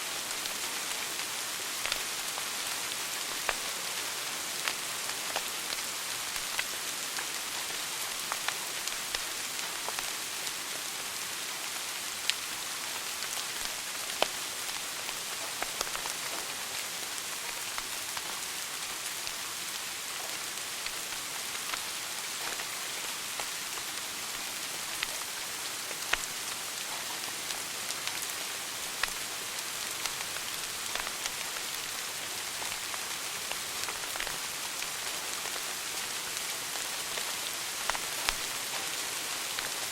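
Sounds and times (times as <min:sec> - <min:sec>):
fire crackles and pops: 0:01.8 - 0:03.8, 0:04.5 - 0:10.6, 0:12.2 - 0:39.9
wood fire hissing: 0:12.2 - 0:36.1, 0:36.7 - 0:38.7.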